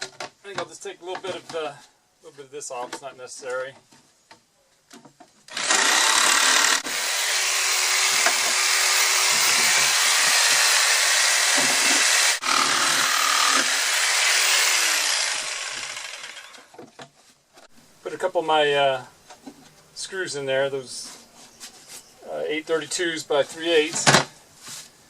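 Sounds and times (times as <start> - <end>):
power tool cutting plastic: 5.5 - 16.7.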